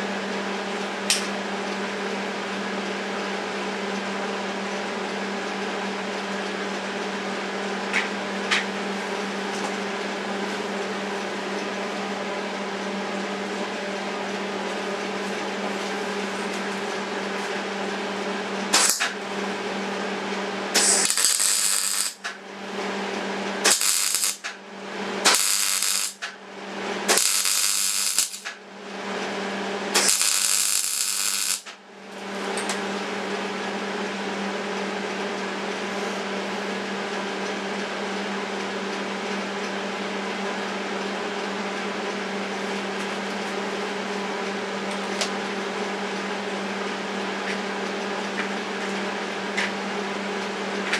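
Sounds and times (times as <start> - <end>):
electrical hum: 7.1 - 34.0
arc welding crackling hiss: 18.8 - 19.1, 20.8 - 22.4, 23.6 - 24.6, 25.2 - 26.3, 27.1 - 28.6, 30.0 - 31.8.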